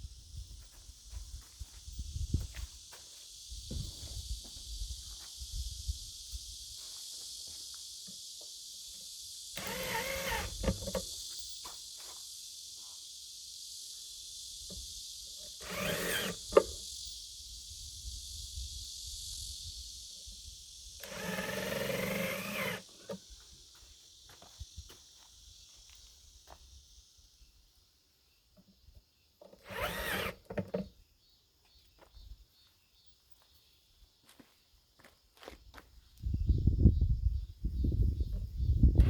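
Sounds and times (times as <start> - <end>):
steady high hiss: 2.7 - 23.6.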